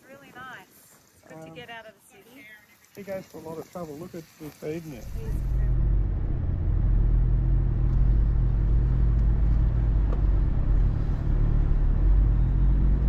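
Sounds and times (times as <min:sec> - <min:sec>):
vehicle engine and road rumble: 0:05.0 - 0:13.0.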